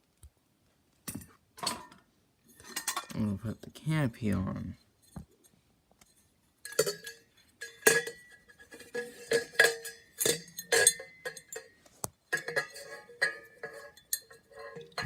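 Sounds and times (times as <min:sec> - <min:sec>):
metal canopy clinks and knocks: 0:06.6 - 0:15.0.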